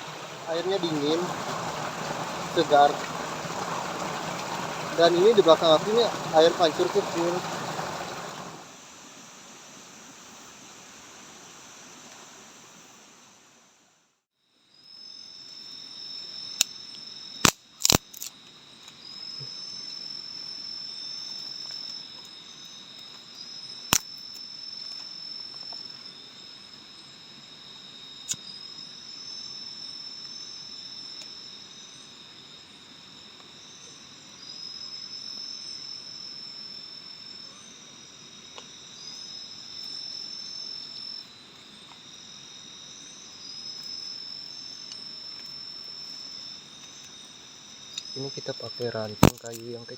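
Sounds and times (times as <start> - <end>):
rushing water-like noise: 0.0 - 8.8
insects droning: 0.0 - 49.9.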